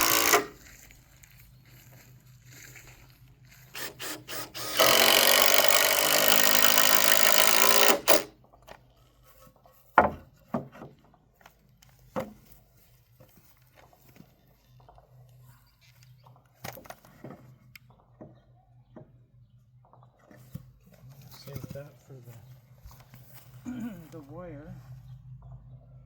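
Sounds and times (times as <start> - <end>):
power drill driving a screw: 0.0 - 0.6, 3.7 - 8.3.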